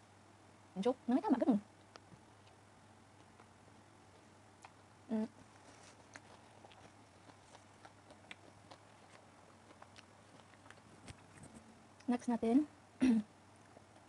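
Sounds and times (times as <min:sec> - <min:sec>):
person chewing: 0:03.2 - 0:03.5, 0:04.1 - 0:04.8, 0:05.4 - 0:12.1.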